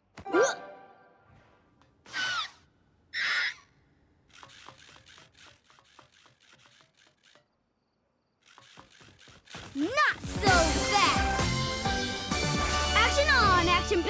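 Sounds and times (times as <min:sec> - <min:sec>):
cartoon sound effects: 0:00.3 - 0:01.2, 0:09.8 - 0:11.5
quick mechanical clicks: 0:04.2 - 0:07.6, 0:08.4 - 0:10.3.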